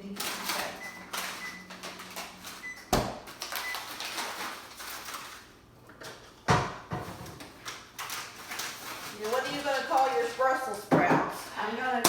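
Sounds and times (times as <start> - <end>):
utensils clicking and rustling: 7.4 - 10.7.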